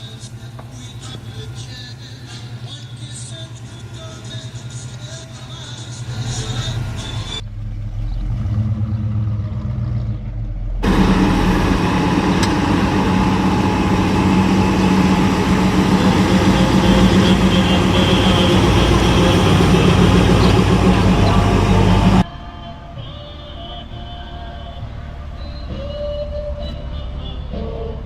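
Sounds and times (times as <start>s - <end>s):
car engine running: 0.0s - 22.2s.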